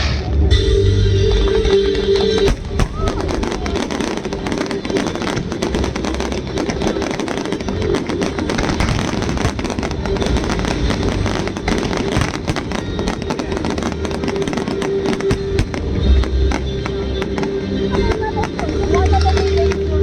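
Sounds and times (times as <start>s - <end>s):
fireworks bursting and crackling: 1.7s - 20.0s.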